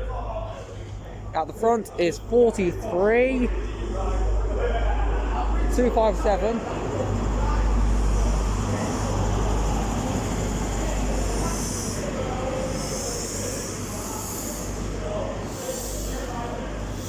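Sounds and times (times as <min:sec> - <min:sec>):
diesel train engine rumbling: 0:00.0 - 0:17.0
high hissing: 0:07.8 - 0:17.0.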